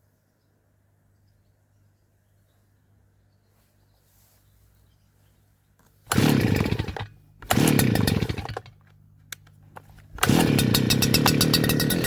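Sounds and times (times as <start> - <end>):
small petrol engine starting: 6.1 - 8.8, 10.1 - 12.0.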